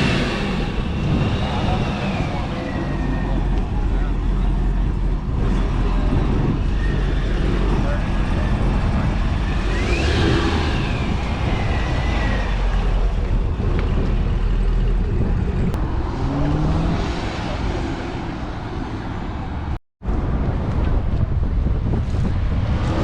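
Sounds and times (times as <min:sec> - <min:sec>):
car engines rumbling: 0:00.0 - 0:23.0
engine revving: 0:05.3 - 0:18.9.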